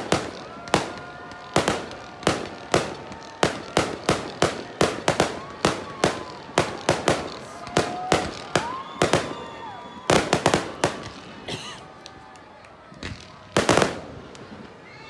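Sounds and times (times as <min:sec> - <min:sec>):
fireworks bangs: 0:00.0 - 0:12.2, 0:12.9 - 0:14.9
faint whistling tones: 0:08.6 - 0:10.8.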